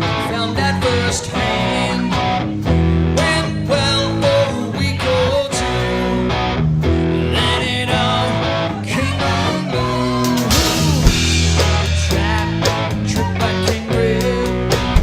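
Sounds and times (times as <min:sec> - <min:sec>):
guitars: 0:00.0 - 0:15.0
live rock band playing: 0:00.0 - 0:15.0
drum beat: 0:10.2 - 0:15.0.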